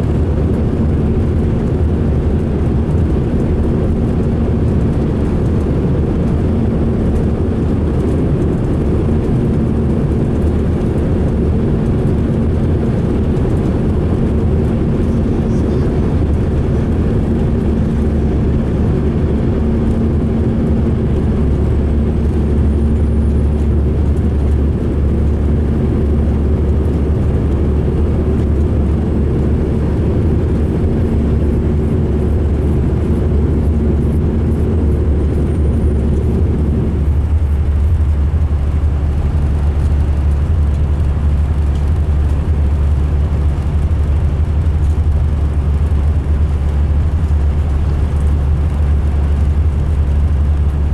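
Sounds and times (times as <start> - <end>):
coach diesel engine rumbling: 0.0 - 50.9
higher hum: 14.5 - 38.2.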